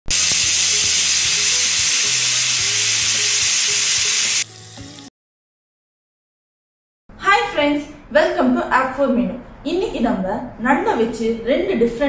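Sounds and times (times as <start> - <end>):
food sizzling in hot oil: 0.1 - 5.1.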